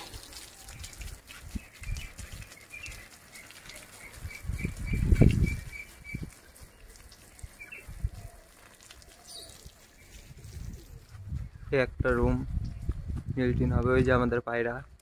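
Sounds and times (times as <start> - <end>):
wings fluttering: 0.0 - 11.3
small bird chirping: 0.7 - 10.4.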